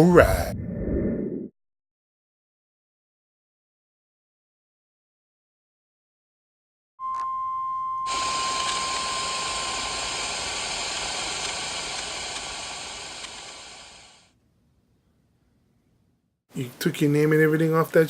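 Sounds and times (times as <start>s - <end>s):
steady high beep: 7.0s - 10.3s
static hiss: 8.1s - 14.3s.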